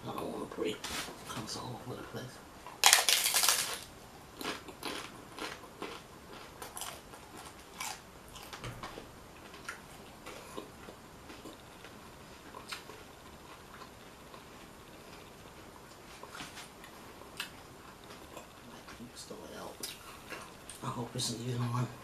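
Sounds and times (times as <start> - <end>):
chewing crunchy taco: 2.7 - 19.0.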